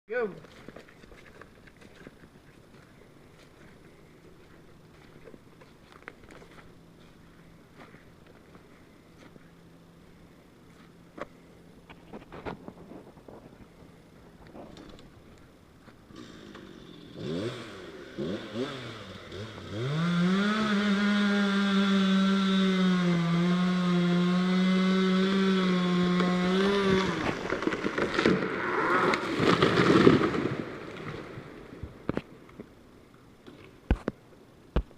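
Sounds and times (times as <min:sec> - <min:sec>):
chainsaw revving and cutting: 0:16.1 - 0:31.1
tree cracking and crashing down: 0:24.6 - 0:32.3.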